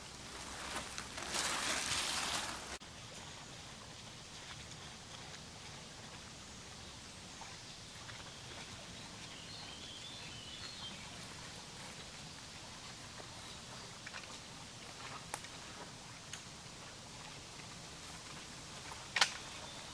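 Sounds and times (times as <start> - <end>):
steady low hiss: 0.0 - 8.0.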